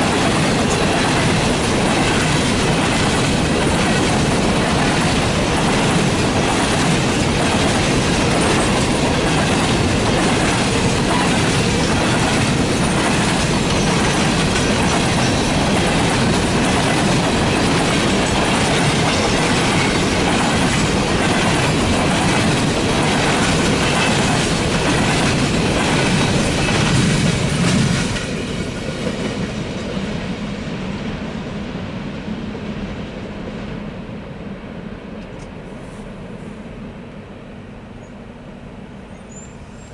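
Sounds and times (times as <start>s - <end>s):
train wheels clattering on rails: 0.0s - 30.4s.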